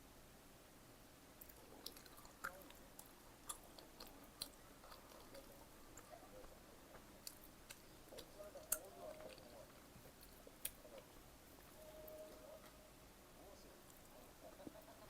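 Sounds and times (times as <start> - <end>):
chewing mouth clicks and smacks: 1.4 - 6.1.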